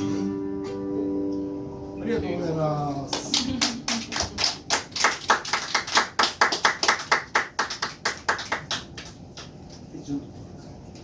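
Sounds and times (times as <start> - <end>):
small audience clapping: 3.0 - 10.0.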